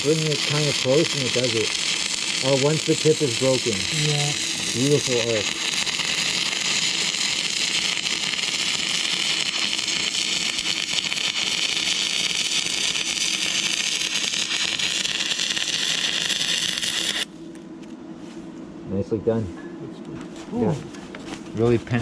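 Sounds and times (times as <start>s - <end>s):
welding arc crackling: 0.0s - 17.4s.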